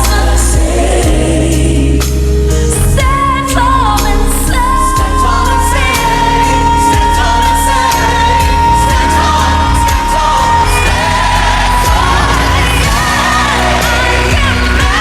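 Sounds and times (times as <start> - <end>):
woman singing: 2.7 - 15.0
band with drums: 7.0 - 15.0.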